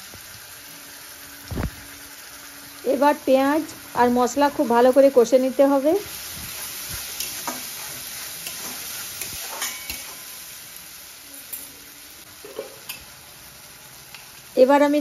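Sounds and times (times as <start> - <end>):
spice paste sizzling in a pan: 0.0 - 15.0
metal spatula scraping a pan: 6.2 - 10.5.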